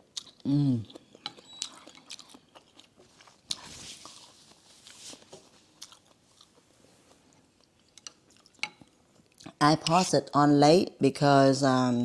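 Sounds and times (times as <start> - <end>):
person chewing: 0.0 - 5.0, 5.6 - 10.0.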